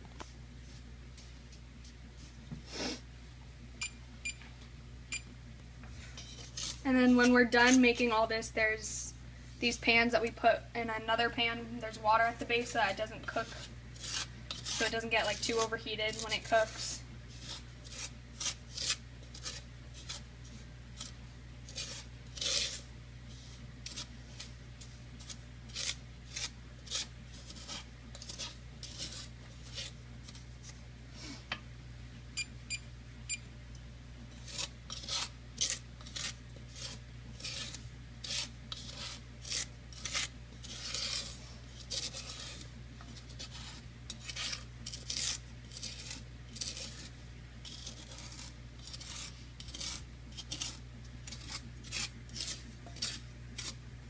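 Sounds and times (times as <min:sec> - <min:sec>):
steady low hum: 0:00.0 - 0:54.0
utensil scraping hot pan: 0:06.0 - 0:08.4, 0:11.5 - 0:31.4, 0:34.3 - 0:53.8.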